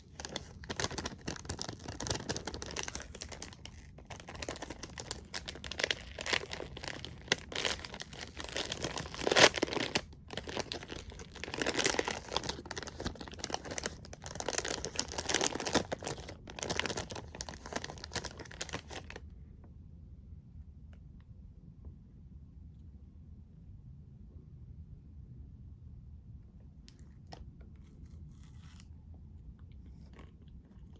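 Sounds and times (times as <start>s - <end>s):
packaging crinkling and tearing: 0.0s - 19.2s.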